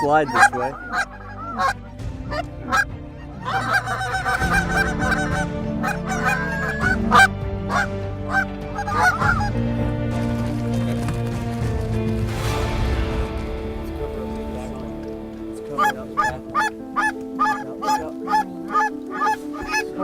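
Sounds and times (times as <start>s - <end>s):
goose calls blown: 0.0s - 2.8s, 3.4s - 9.5s, 15.8s - 19.8s
geese honking and clucking: 0.0s - 9.8s, 15.5s - 20.0s.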